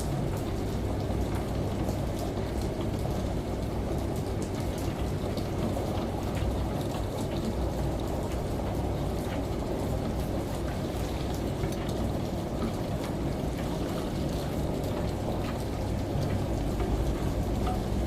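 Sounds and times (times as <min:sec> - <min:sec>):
steady rain: 0:00.0 - 0:18.0
washing machine hum: 0:00.0 - 0:18.0.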